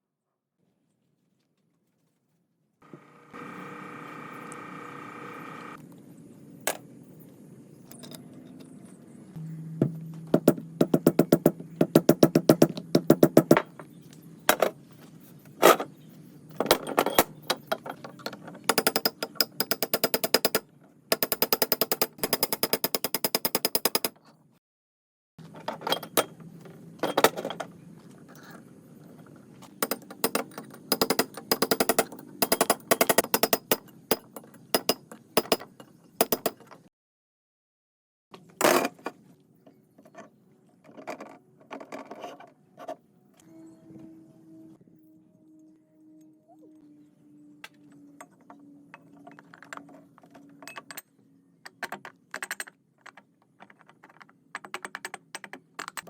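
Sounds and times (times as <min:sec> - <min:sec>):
metallic clicking and rattling tool: 0:16.8 - 0:24.2, 0:29.8 - 0:36.8.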